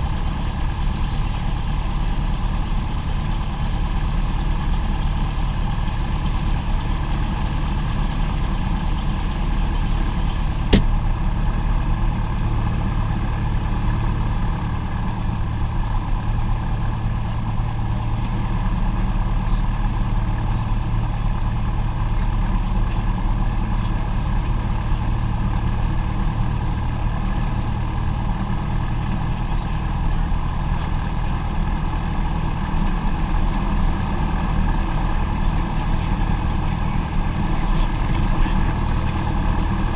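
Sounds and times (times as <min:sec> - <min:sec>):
aircraft engine droning: 0:00.0 - 0:26.1, 0:26.7 - 0:39.9.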